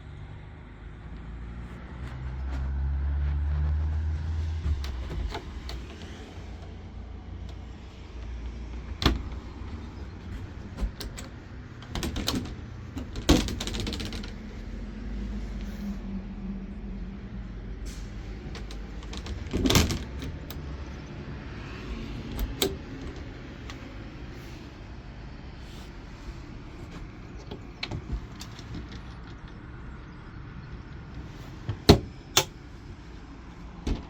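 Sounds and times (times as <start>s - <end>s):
sharp knocks and bumps: 4.1s - 6.5s, 9.0s - 14.4s.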